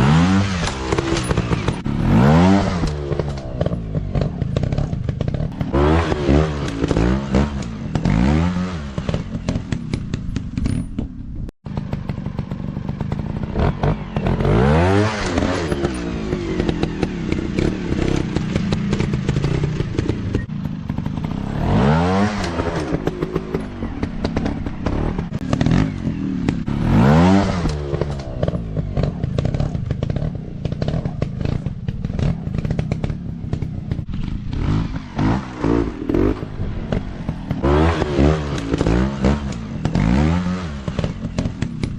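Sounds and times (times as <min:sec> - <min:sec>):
dirt bike engines revving: 0:00.0 - 0:10.6, 0:11.7 - 0:41.9.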